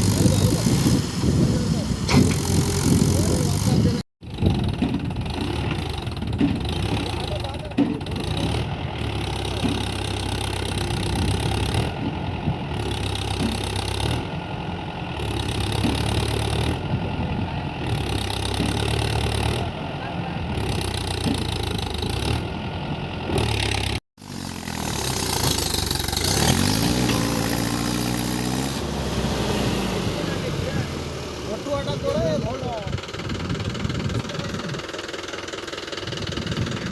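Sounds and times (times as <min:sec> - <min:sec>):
diesel tractor engine running: 0:00.0 - 0:36.9
engine revving up: 0:05.3 - 0:14.5, 0:23.2 - 0:34.8.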